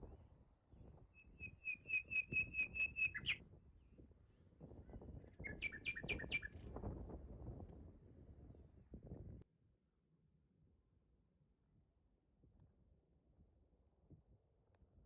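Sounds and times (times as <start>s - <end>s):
songbird whistled notes: 1.2s - 3.4s, 5.4s - 6.5s.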